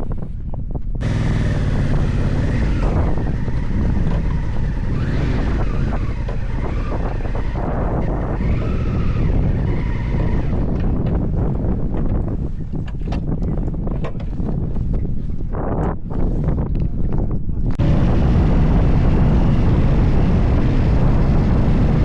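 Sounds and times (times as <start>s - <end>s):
wind rushing over microphone: 0.0s - 22.0s
motorcycle engine revving: 1.0s - 11.2s, 17.8s - 22.0s.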